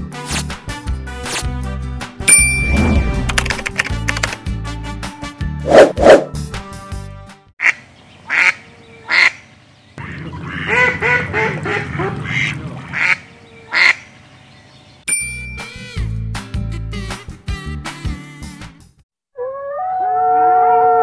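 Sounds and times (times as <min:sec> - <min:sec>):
short chime: 0:02.3 - 0:03.2
duck quacking: 0:07.6 - 0:09.4, 0:10.0 - 0:14.1.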